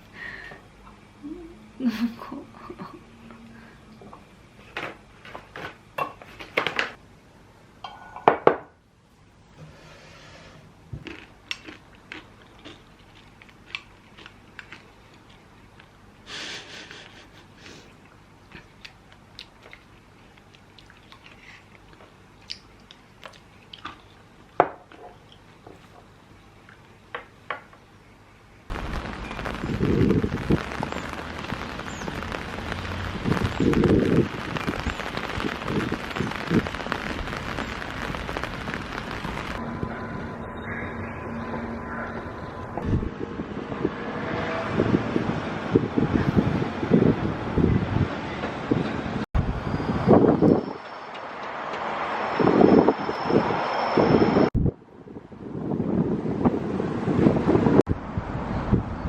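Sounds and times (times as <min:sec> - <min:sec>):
loud steady hiss: 0:28.7 - 0:39.6.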